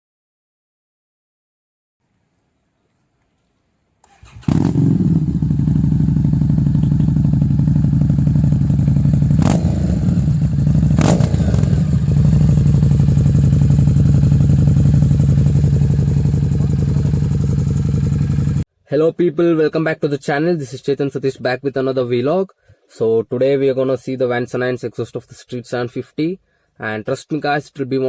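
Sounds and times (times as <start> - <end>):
motorcycle engine idling: 4.1 - 18.6.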